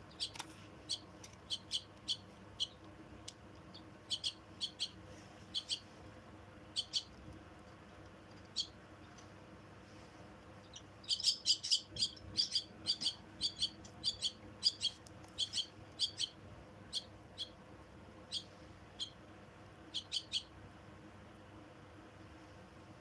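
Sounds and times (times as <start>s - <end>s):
chicks chirping: 0.0s - 2.9s, 3.6s - 5.9s, 6.7s - 7.2s, 8.4s - 9.2s, 10.6s - 17.6s, 18.2s - 19.2s, 19.9s - 20.5s.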